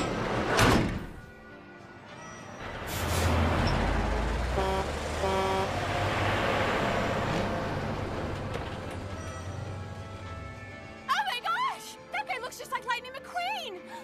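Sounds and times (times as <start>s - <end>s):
heavy vehicle engine rumble: 2.5s - 10.7s
short horn toots: 4.6s - 5.8s.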